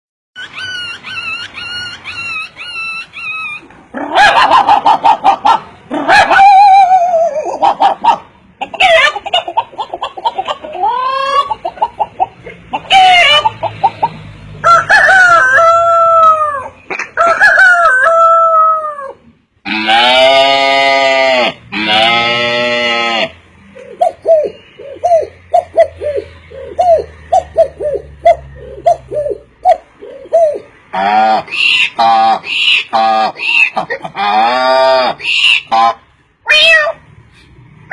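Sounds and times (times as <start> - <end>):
bird calling: 0.4 - 14.2, 23.2 - 36.0.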